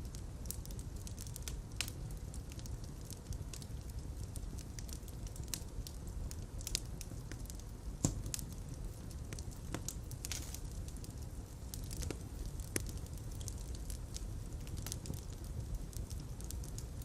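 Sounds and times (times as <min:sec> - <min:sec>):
fire crackling in fireplace: 0:00.0 - 0:17.0
sharp pops and snaps: 0:08.0 - 0:08.5.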